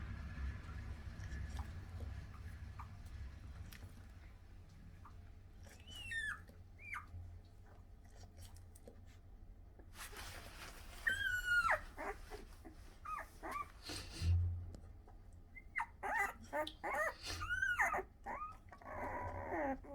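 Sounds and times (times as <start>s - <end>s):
puppy whining: 5.0s - 7.3s, 11.0s - 14.4s, 15.5s - 19.9s.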